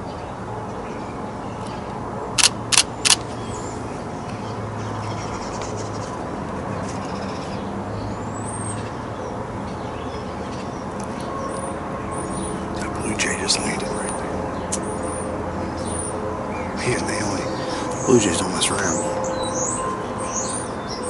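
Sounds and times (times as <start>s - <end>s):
camera shutter clicks: 2.4s - 3.2s.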